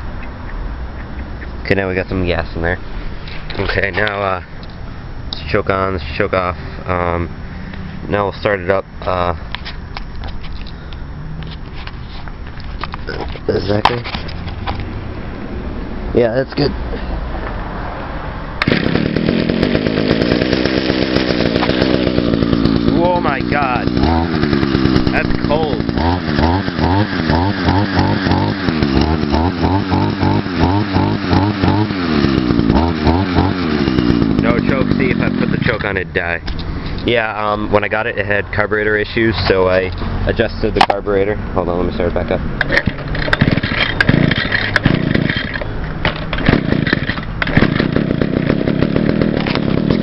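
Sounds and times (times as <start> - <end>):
string trimmer engine running: 18.6 - 36.2, 42.7 - 50.0.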